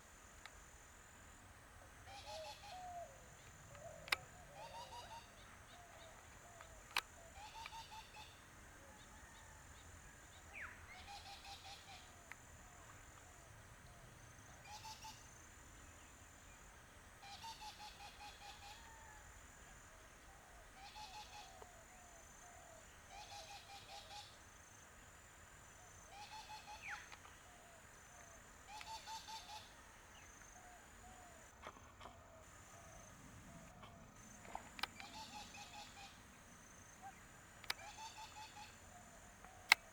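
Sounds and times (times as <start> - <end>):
high insect drone: 0.0 - 31.7, 32.4 - 39.9
faint bird chattering: 2.1 - 8.4, 26.1 - 27.6, 28.7 - 31.5, 32.5 - 39.9.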